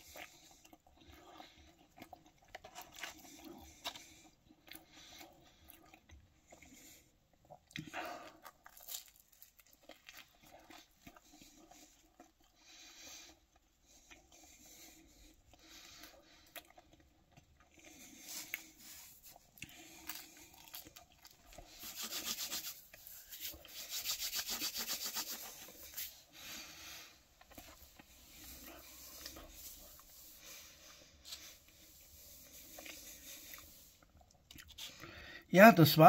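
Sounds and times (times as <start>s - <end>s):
chewing pizza crust: 0.0s - 35.5s
rubbing and rustling: 21.6s - 26.3s.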